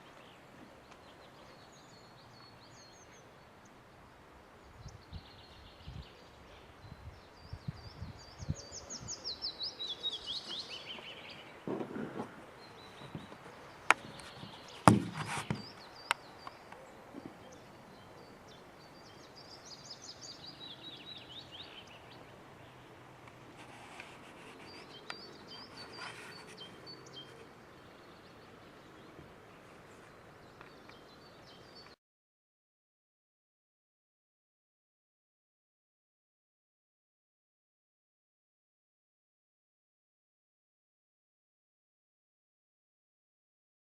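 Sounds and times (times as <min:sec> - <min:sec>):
songbirds singing: 0:00.0 - 0:32.0
sharp knocks: 0:14.8 - 0:15.7.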